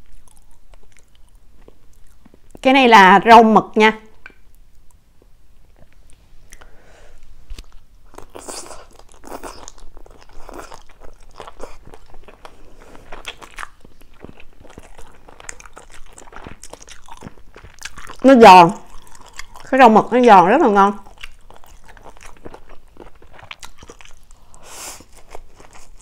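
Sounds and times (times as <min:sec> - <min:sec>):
chewing and crunching: 0:00.0 - 0:02.6, 0:07.5 - 0:20.2, 0:21.0 - 0:26.0.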